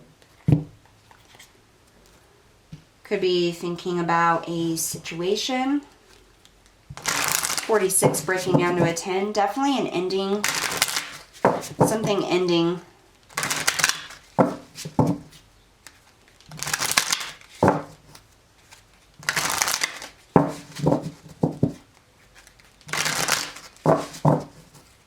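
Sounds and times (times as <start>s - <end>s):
cards rustling while shuffled: 6.9s - 9.0s, 10.4s - 12.4s, 13.3s - 25.0s
card taps: 7.8s - 9.0s.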